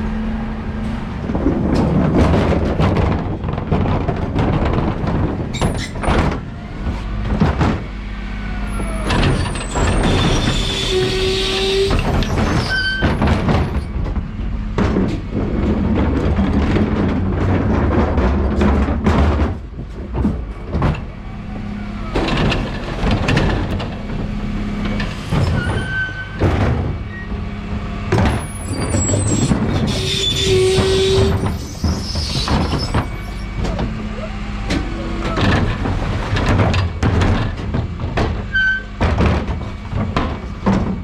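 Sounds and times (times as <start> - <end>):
truck engine hum: 0.0 - 41.0
knocks and rattles: 1.2 - 8.0, 8.8 - 41.0.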